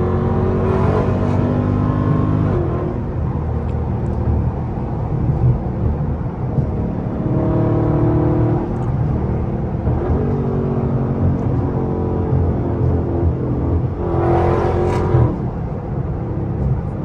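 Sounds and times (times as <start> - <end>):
car engine and exhaust rumbling: 0.0 - 17.0.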